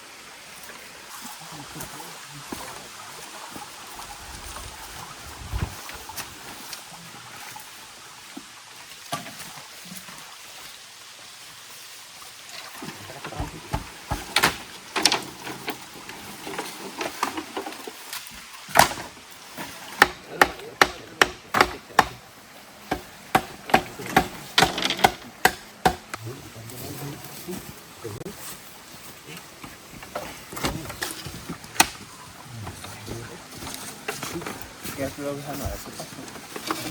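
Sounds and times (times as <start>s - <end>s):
chopping blows on wood: 19.9s - 22.2s, 22.9s - 26.2s.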